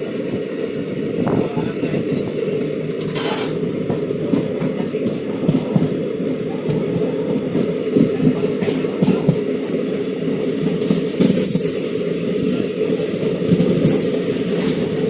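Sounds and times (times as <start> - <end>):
train wheels rumbling on track: 0.0 - 15.0
train wheels clattering: 6.7 - 15.0.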